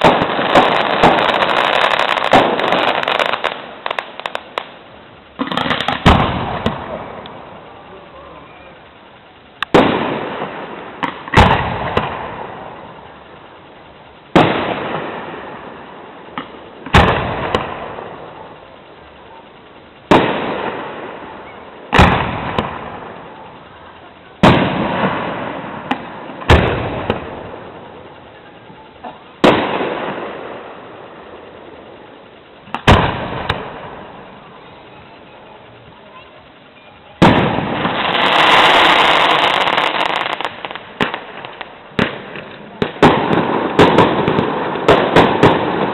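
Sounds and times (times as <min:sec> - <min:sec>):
small firework pops: 0:00.0 - 0:07.4, 0:09.6 - 0:12.5, 0:16.3 - 0:18.6, 0:20.1 - 0:23.7, 0:24.4 - 0:30.2, 0:32.7 - 0:34.0, 0:37.2 - 0:45.9
firework shells bursting: 0:00.0 - 0:45.9.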